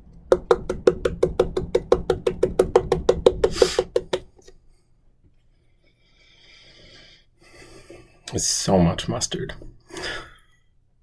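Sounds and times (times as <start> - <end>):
rapid tapping on glass jar: 0.3 - 4.5.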